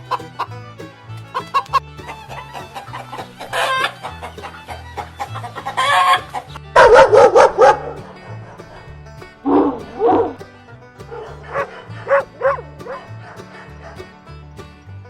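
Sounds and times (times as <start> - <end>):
chickens clucking: 0.0 - 14.8
background music with bass line: 0.0 - 15.0
rooster crowing: 2.3 - 8.7.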